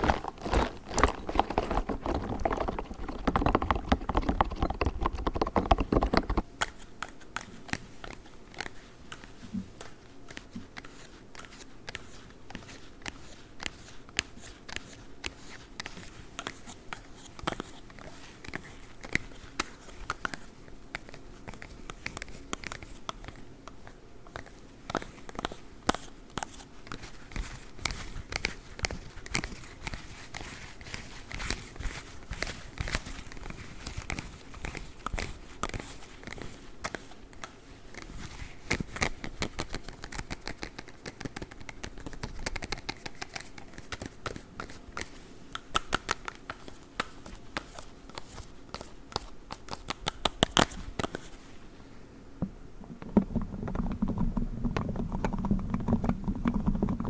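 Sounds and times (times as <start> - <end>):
plastic claws tapping and scratching: 0.0 - 6.8, 24.3 - 51.3, 52.8 - 57.0
rubber toy ball squished and rubbed: 0.0 - 6.8.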